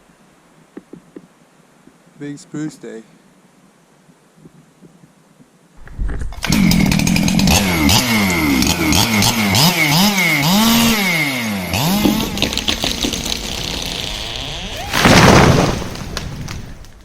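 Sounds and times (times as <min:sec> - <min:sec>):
chainsaw starting and revving: 0:06.4 - 0:15.6.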